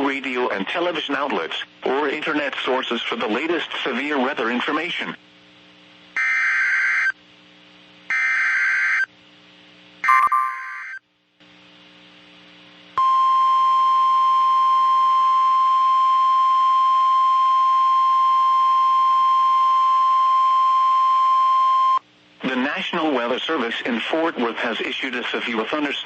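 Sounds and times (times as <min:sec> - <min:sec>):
steady warning alarm tone: 0:06.2 - 0:07.2, 0:08.1 - 0:09.1, 0:10.0 - 0:11.0
screeching digital data bursts: 0:10.0 - 0:11.0.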